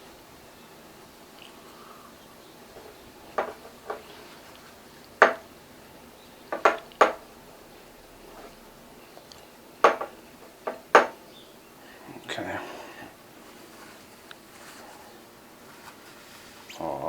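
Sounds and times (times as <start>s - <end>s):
hard object clinking on a dish: 2.8s - 4.1s, 5.2s - 5.5s, 6.5s - 7.2s, 9.8s - 11.2s.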